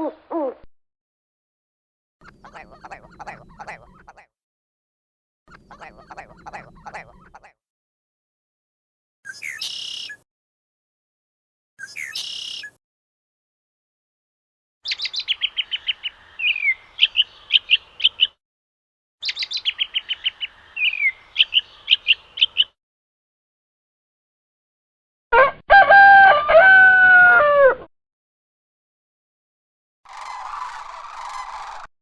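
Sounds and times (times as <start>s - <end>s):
songbird singing: 9.3s - 10.2s, 11.8s - 12.8s, 14.8s - 18.4s, 19.2s - 22.8s
rooster crowing: 25.4s - 27.9s.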